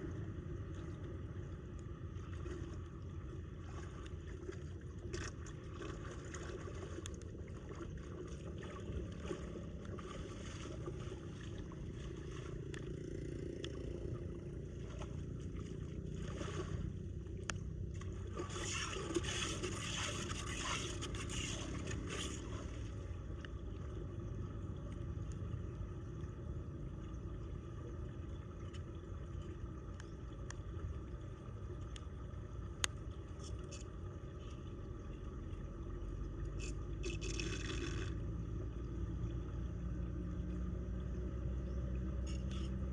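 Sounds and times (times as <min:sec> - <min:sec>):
floodwater rushing down drain: 0:02.1 - 0:24.8, 0:36.0 - 0:40.2.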